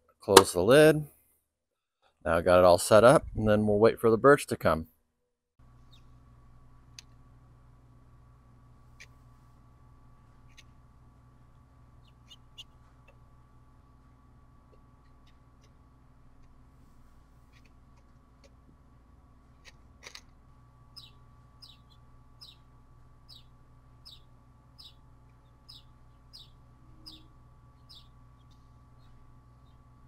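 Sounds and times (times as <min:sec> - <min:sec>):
steady low hum: 0:02.3 - 0:04.9, 0:05.6 - 0:30.0
wild bird calling: 0:21.0 - 0:29.8.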